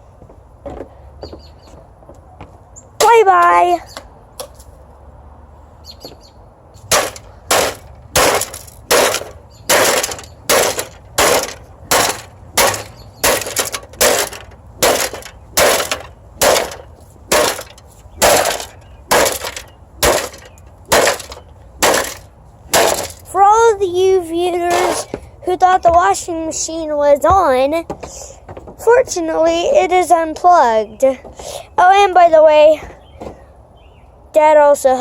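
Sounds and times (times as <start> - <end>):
golf club smashing washing machine: 6.9 - 23.3.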